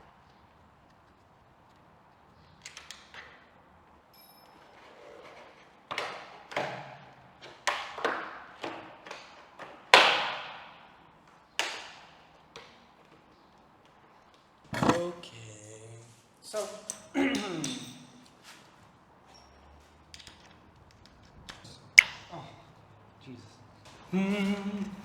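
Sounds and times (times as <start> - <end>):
tools knocking and clacking: 14.7 - 15.1, 16.8 - 18.4.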